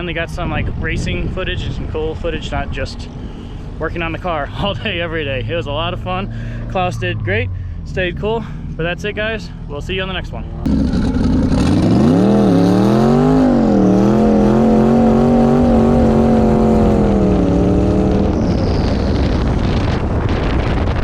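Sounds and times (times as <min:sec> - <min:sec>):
wind or road noise: 0:00.0 - 0:21.0
car engine revving: 0:02.2 - 0:20.9.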